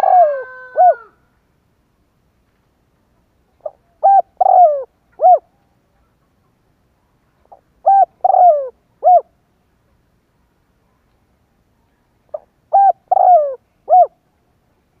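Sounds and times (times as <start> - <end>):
dove cooing: 0.0 - 1.2, 3.6 - 5.6, 7.5 - 9.4, 12.3 - 14.2.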